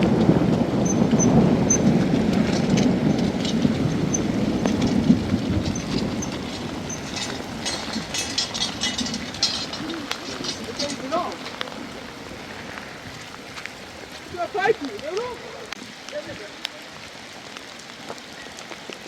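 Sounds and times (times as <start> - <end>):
low rumble of thunder: 0.0 - 15.0
rain crackling: 0.0 - 19.0.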